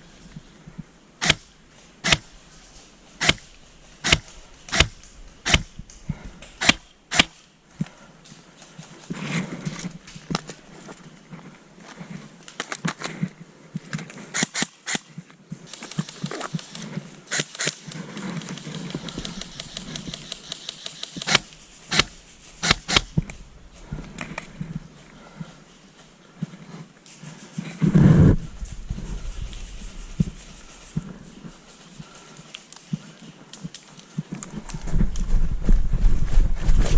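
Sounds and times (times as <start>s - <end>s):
footsteps in woodland: 0.0s - 36.3s
sharp clicks and knocks: 1.2s - 2.4s, 3.1s - 7.4s, 17.3s - 23.4s.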